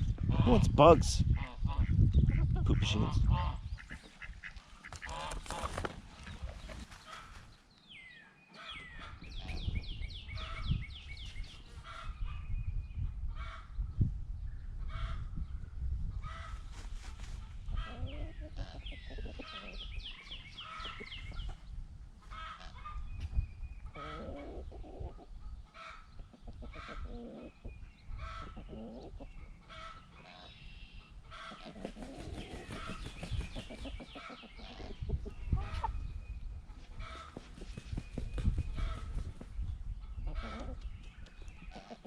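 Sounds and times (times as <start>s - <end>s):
chickens clucking: 1.3s - 7.5s, 17.3s - 21.6s, 22.2s - 42.0s.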